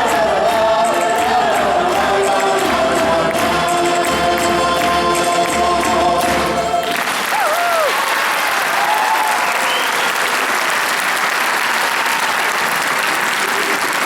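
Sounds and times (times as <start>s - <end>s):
choir singing: 0.0s - 7.3s
audience applauding: 0.0s - 14.0s.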